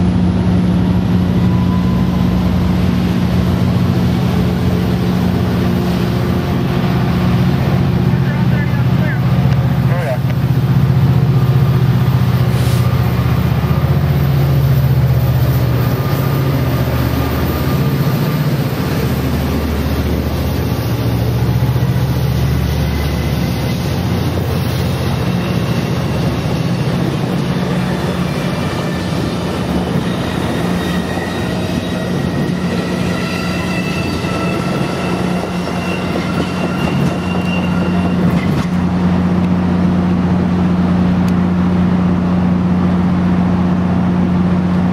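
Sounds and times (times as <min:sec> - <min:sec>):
diesel locomotive passing: 0:00.0 - 0:44.9
high-pitched squealing: 0:12.3 - 0:38.8.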